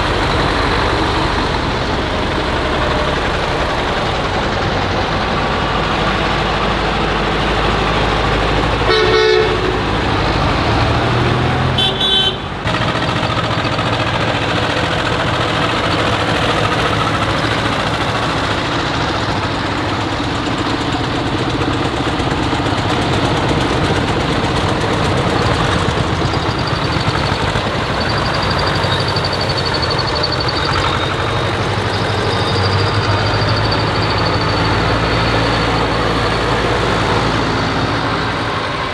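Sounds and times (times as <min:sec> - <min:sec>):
tractor engines running: 0:00.0 - 0:38.9
short horn toots: 0:08.8 - 0:10.1, 0:11.8 - 0:12.6.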